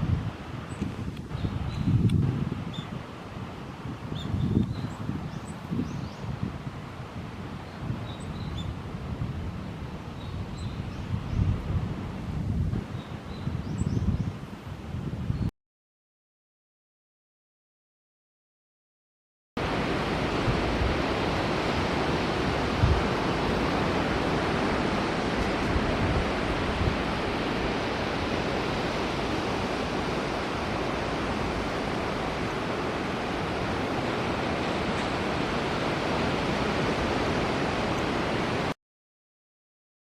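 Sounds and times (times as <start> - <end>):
river water rushing: 0.0 - 5.7, 19.6 - 38.8.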